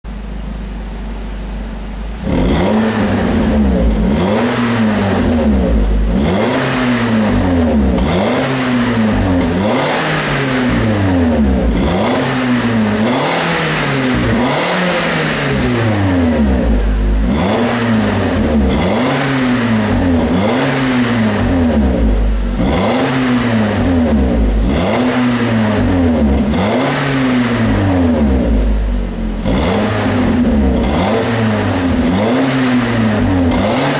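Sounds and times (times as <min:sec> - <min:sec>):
car engine revving: 0:02.1 - 0:33.9.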